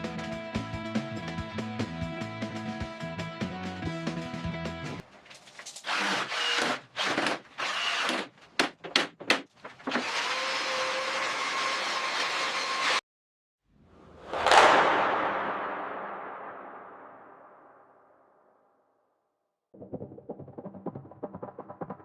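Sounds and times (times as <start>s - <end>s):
music: 0.0s - 5.0s, 19.8s - 22.0s
power tool running: 5.8s - 8.3s, 9.9s - 13.0s.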